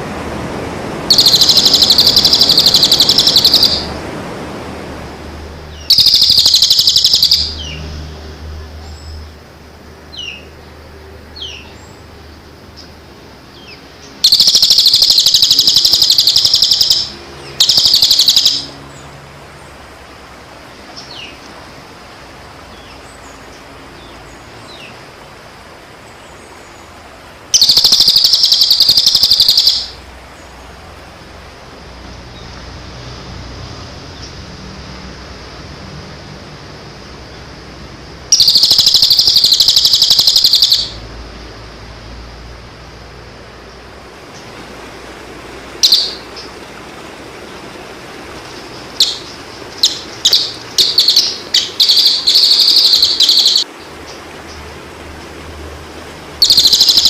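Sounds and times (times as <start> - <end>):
harsh rapid buzzing bird trills: 1.1 - 3.9, 5.7 - 7.9, 13.5 - 19.1, 27.5 - 30.5, 38.3 - 41.0, 45.8 - 46.6, 48.4 - 53.7, 56.4 - 57.0.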